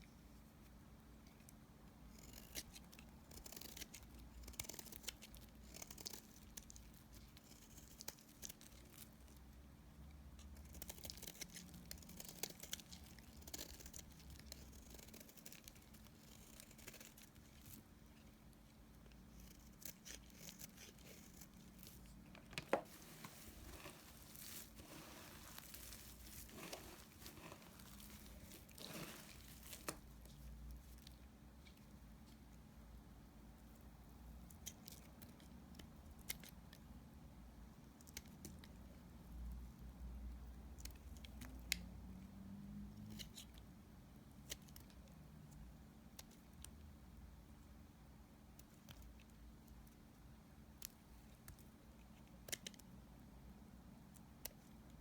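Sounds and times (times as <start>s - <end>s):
soap being cut: 22.7s - 30.1s.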